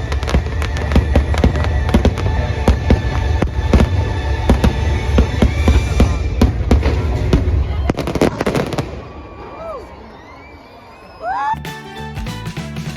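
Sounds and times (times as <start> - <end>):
show music: 0.0 - 8.8, 11.3 - 12.9
fireworks bursting: 0.0 - 9.8.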